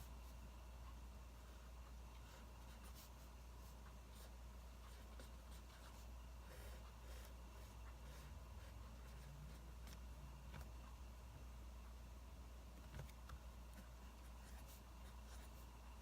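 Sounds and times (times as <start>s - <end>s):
steady low hum: 0.0s - 16.0s
pen scratching on paper: 2.2s - 10.7s, 13.7s - 15.7s.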